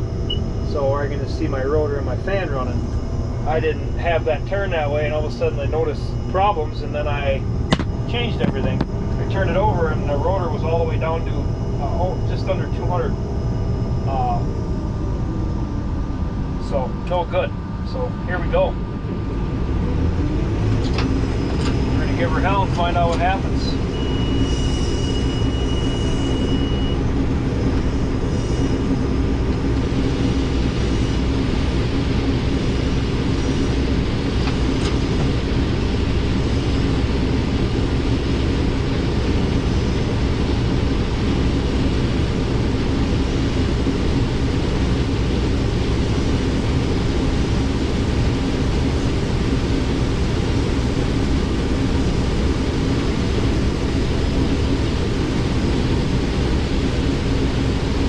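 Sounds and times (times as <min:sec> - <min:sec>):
combine harvester running: 0:00.0 - 0:58.0
high steady beep: 0:00.2 - 0:00.6, 0:23.8 - 0:27.1.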